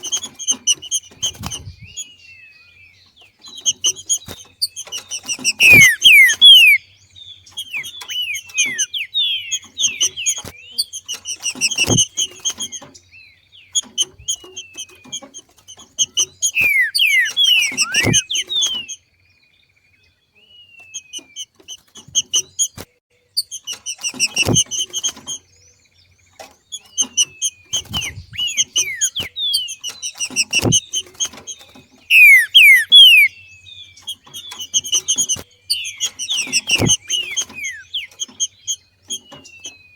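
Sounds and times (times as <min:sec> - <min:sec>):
bird chirping falling notes: 0:00.0 - 0:19.1, 0:26.4 - 0:39.9
dull thumps: 0:11.3 - 0:12.9, 0:36.3 - 0:38.4.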